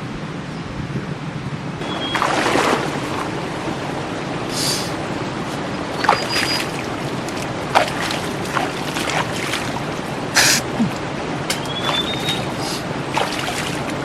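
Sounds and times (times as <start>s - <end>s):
heavy rain on a tent: 2.3s - 14.0s.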